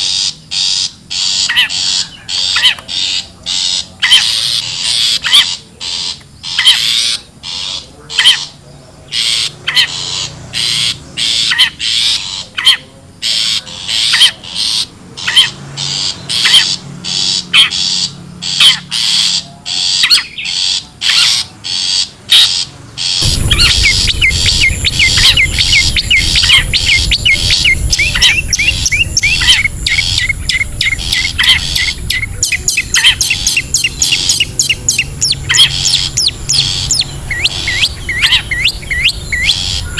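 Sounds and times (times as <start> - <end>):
bird harsh rasping calls: 0.0 - 39.9
low hum: 23.2 - 39.9.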